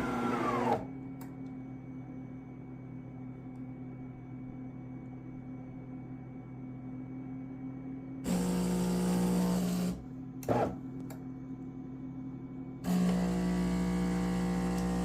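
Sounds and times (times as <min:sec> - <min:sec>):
espresso machine pump buzzing: 0:00.0 - 0:01.0, 0:08.3 - 0:10.8, 0:12.8 - 0:15.0.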